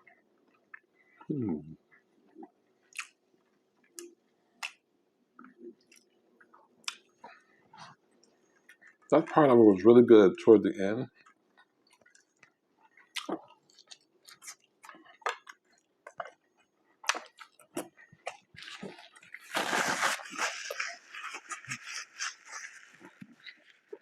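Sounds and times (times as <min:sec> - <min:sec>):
chewing with wet mouth clicks: 0:01.9 - 0:04.8, 0:05.4 - 0:09.4, 0:11.1 - 0:19.4, 0:20.4 - 0:24.0
crackling: 0:18.6 - 0:24.0.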